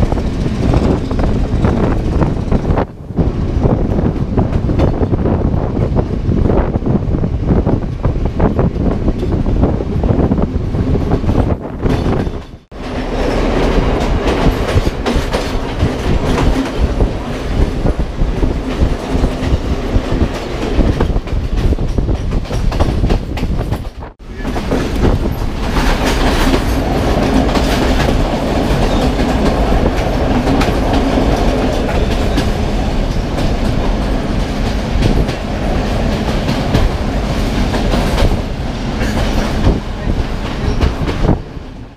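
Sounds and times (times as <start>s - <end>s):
train rumbling on rails: 0.0s - 41.9s
wheels clattering over rail joints: 11.0s - 41.4s.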